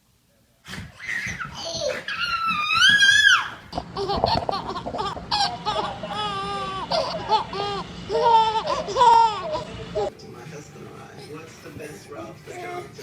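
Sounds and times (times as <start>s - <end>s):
baby laughing: 0.9s - 10.1s.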